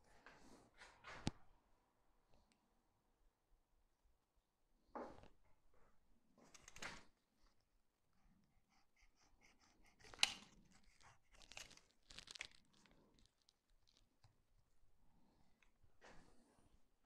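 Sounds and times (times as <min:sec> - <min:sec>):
knife scraping rubber: 0:08.7 - 0:12.5.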